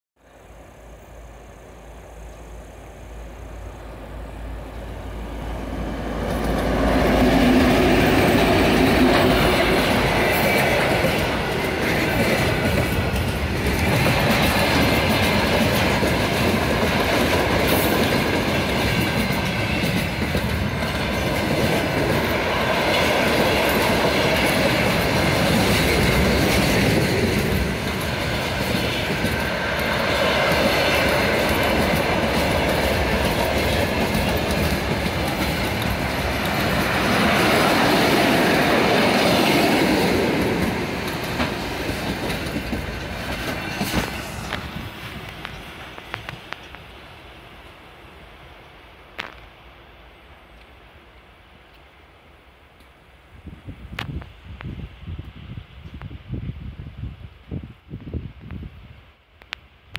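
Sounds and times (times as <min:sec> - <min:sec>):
diesel locomotive engines: 0:00.2 - 0:59.9
freight wagons clickety-clack: 0:06.2 - 0:37.5, 0:39.3 - 0:46.7.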